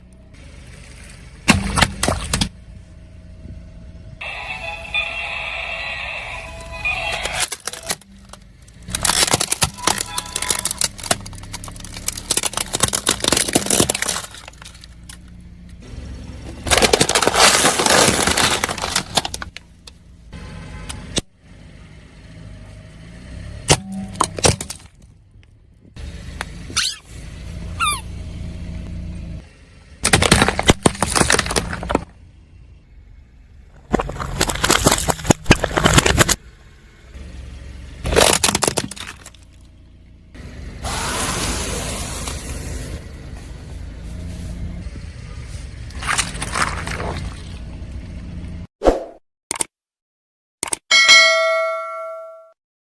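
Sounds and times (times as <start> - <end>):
car engine running low: 0.0 - 48.7
tyres crushing crunchy objects: 1.5 - 2.5, 7.1 - 15.2, 16.5 - 19.6, 23.7 - 25.1, 30.0 - 32.1, 33.7 - 36.4, 38.0 - 39.7, 45.6 - 47.6.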